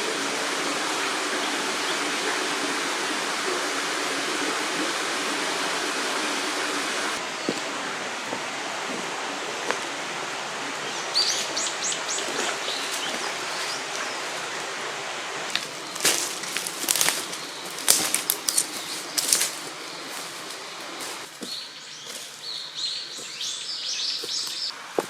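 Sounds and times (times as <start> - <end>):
river rushing over rocks: 0.0 - 21.3
bird chirping: 7.2 - 8.0, 10.8 - 14.2, 15.6 - 24.8.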